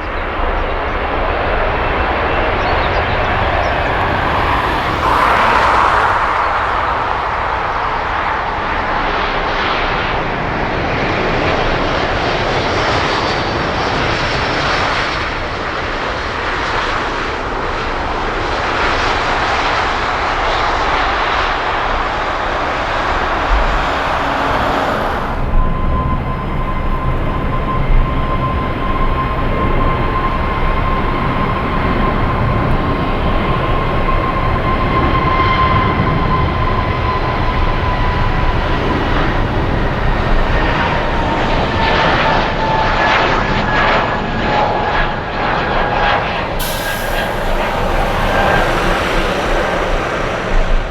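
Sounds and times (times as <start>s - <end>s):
airliner engines roaring: 0.0s - 50.9s
thin high tone: 46.6s - 50.9s.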